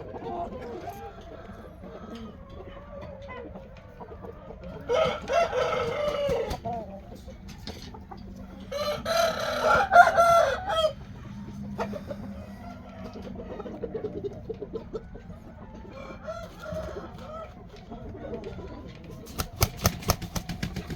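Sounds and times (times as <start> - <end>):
rooster crowing: 4.9 - 6.5, 8.7 - 11.0.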